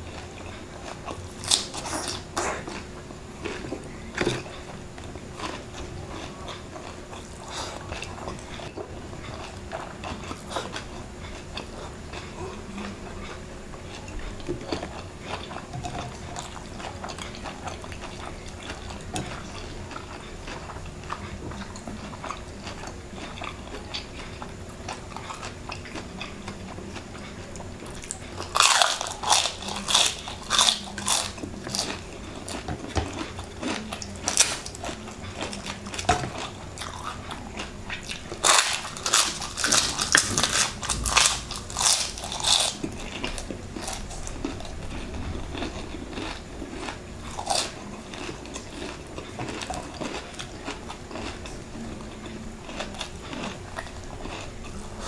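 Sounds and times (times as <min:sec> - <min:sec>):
chewing close up: 0:00.0 - 0:55.0
loud sharp crunching: 0:28.5 - 0:32.0, 0:38.4 - 0:50.4.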